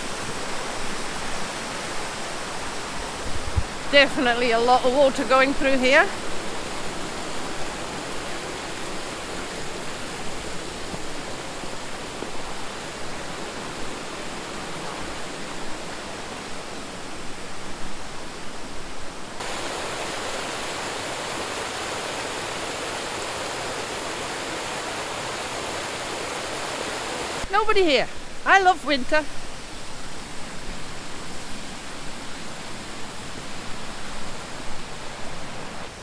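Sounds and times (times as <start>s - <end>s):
mountain stream rushing: 0.0s - 36.0s.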